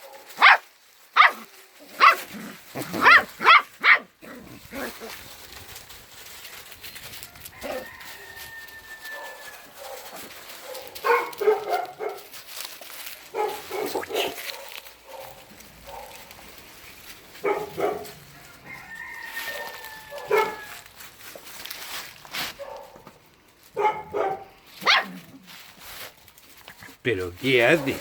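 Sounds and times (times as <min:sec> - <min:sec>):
dogs barking: 0:00.0 - 0:05.0, 0:09.0 - 0:12.4, 0:13.3 - 0:16.3, 0:17.4 - 0:18.2, 0:20.1 - 0:20.7, 0:22.6 - 0:23.1, 0:23.7 - 0:25.3, 0:27.6 - 0:28.0.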